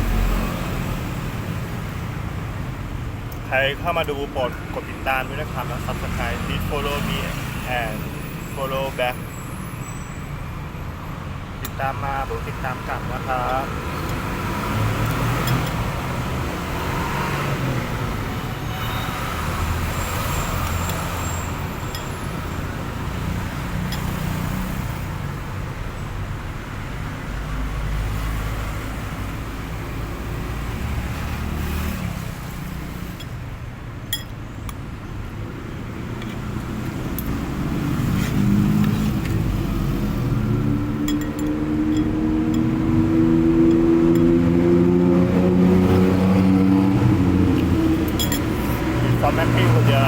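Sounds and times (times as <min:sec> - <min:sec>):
road traffic rumble: 0:00.0 - 0:50.0
vehicle accelerating: 0:11.9 - 0:25.4, 0:26.9 - 0:33.2, 0:35.4 - 0:50.0.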